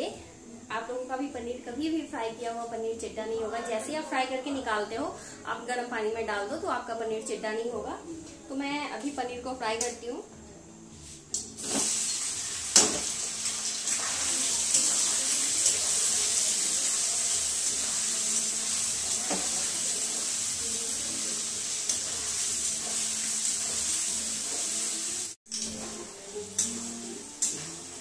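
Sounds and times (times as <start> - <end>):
deep-frying sizzle in oil: 11.6 - 28.0.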